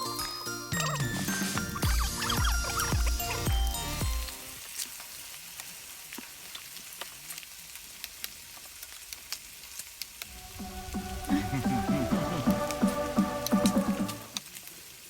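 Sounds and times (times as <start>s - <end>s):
background music: 0.0s - 4.6s, 10.3s - 14.4s
meat sizzling on a grill: 3.1s - 11.3s, 14.3s - 15.0s.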